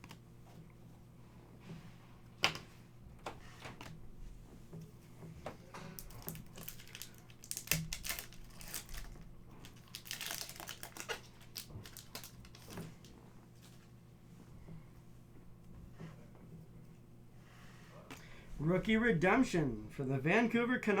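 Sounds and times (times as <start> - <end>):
trading cards rustling and clicking: 5.5 - 13.9.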